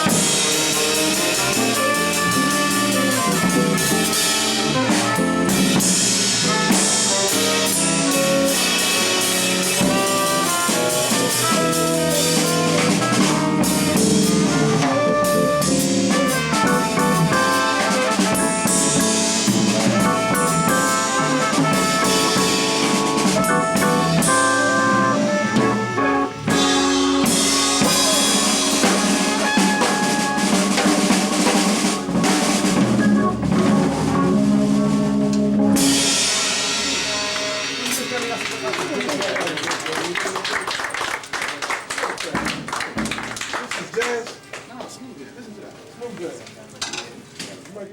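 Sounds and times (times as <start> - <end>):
tenor saxophone: 0.0 - 37.8
jazz organ: 0.0 - 40.2
drum kit with rimshots: 0.0 - 41.0.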